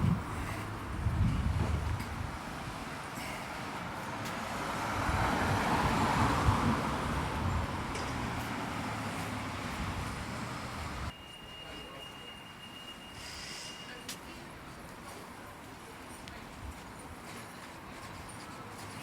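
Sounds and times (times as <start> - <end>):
low traffic rumble: 0.0 - 11.2
vehicle passing by: 4.3 - 11.1.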